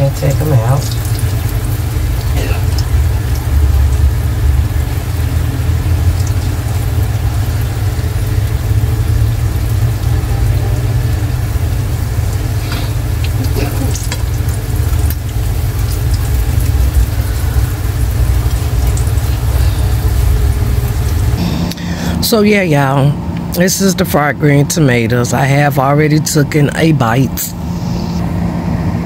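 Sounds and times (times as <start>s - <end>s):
food sizzling in frying oil: 0.0s - 21.4s
low rumble: 0.0s - 24.1s.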